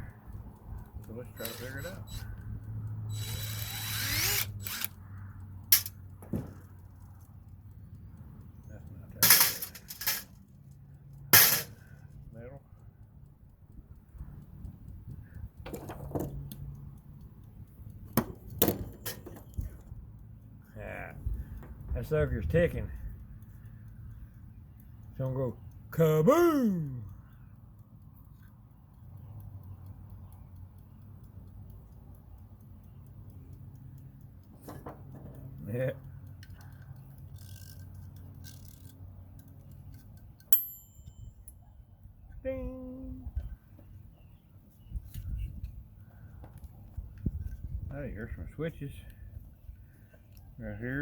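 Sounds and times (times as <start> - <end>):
mechanical timer ticking: 0.0 - 9.2, 10.4 - 15.6, 16.3 - 18.6, 19.4 - 34.5
metal parts clicking and clanking: 5.6 - 7.1, 9.2 - 11.9, 15.6 - 16.7, 18.1 - 19.9
timer bell ding: 40.5 - 41.6.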